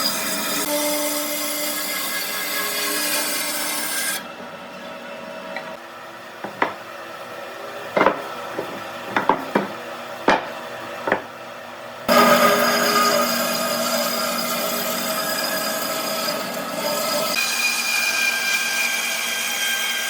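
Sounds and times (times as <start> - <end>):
wooden knocks: 6.4 - 6.8, 8.0 - 11.3.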